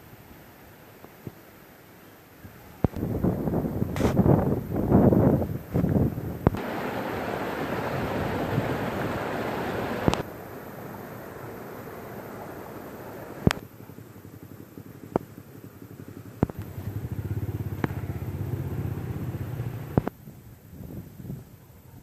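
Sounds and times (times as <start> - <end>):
wind buffeting microphone: 2.8 - 10.3, 16.4 - 22.0
low pulsing hum: 13.8 - 20.1.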